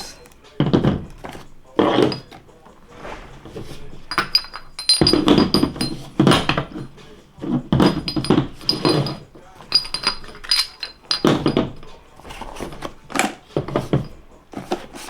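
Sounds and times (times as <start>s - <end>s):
metallic clinks: 4.1s - 12.2s
boxes thunking on a table: 11.2s - 15.0s.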